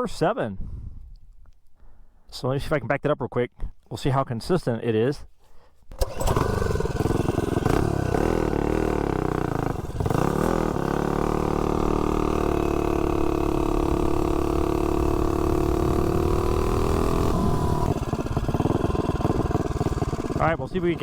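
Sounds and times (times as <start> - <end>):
small engine running unevenly: 5.9 - 21.0.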